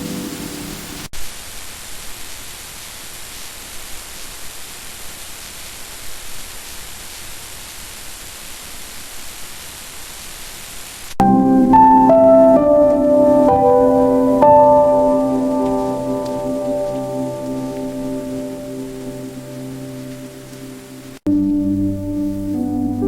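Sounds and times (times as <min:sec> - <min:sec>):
rain hiss: 0:00.0 - 0:23.0
background music: 0:11.2 - 0:23.0
music with pitched notes: 0:11.2 - 0:23.0.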